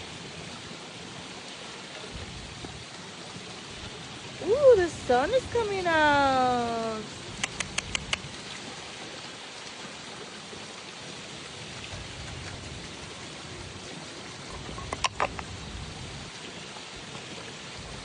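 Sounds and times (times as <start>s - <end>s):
steady rain falling: 0.0s - 18.0s
sharp clicks: 7.4s - 8.3s.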